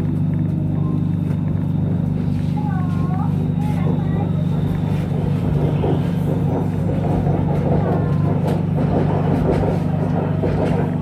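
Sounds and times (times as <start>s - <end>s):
train hum in motion: 0.0s - 11.0s
wheels rumbling on track: 0.0s - 11.0s.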